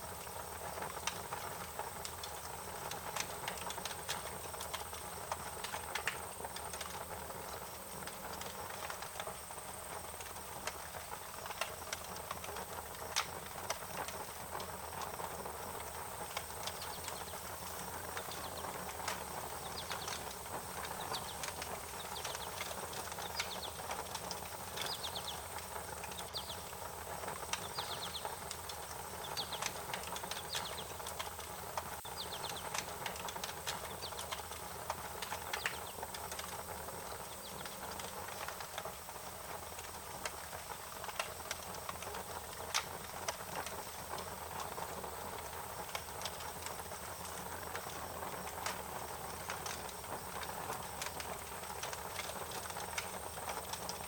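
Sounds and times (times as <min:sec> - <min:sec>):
wood fire crackling: 0:00.0 - 0:54.0
bird chirping: 0:20.9 - 0:23.8, 0:24.8 - 0:25.4, 0:26.1 - 0:26.6, 0:27.6 - 0:28.4, 0:29.2 - 0:29.6, 0:30.4 - 0:31.0, 0:32.0 - 0:32.8.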